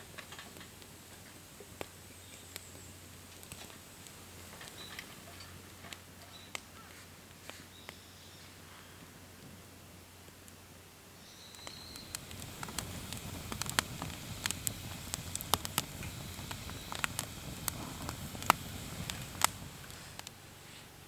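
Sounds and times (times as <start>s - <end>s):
campfire crackling: 0.1s - 6.6s, 11.4s - 20.6s.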